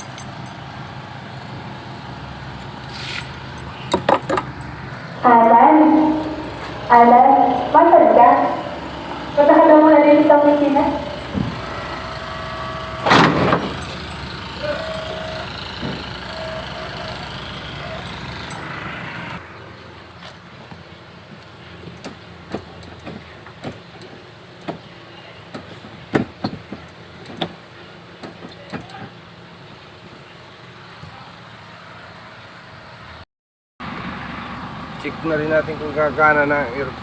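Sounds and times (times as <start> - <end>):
steady mechanical noise: 0.0 - 30.7.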